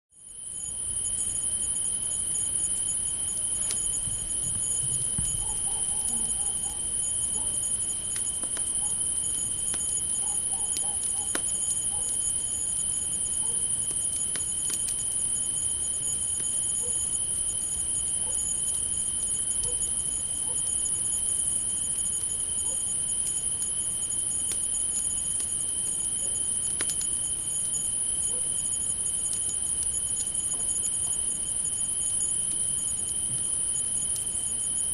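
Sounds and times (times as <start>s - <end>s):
crickets chirping: 0.2s - 34.9s
campfire crackling: 0.6s - 16.7s, 23.2s - 28.2s, 28.9s - 32.6s.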